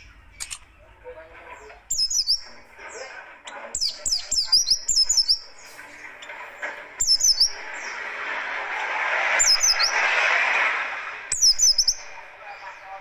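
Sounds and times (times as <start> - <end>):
bird song bursts: 1.6 - 10.4, 11.0 - 13.0
rushing hiss: 4.8 - 13.0.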